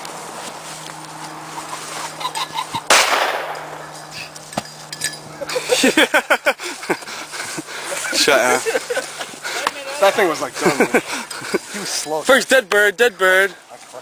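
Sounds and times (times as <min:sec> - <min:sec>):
shotgun blast: 0:02.9 - 0:03.9.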